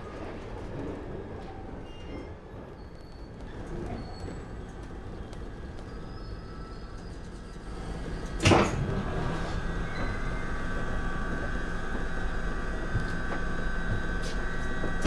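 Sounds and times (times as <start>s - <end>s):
train low rumble: 0.0s - 15.0s
train high whine: 2.8s - 15.0s
loud train clunk: 6.5s - 15.0s.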